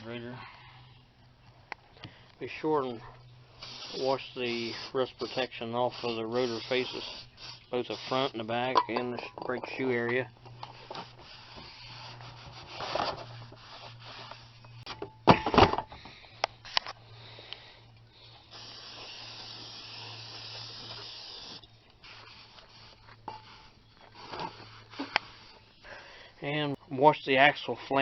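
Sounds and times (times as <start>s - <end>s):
aerosol can spraying: 3.6s - 8.4s, 18.4s - 23.0s.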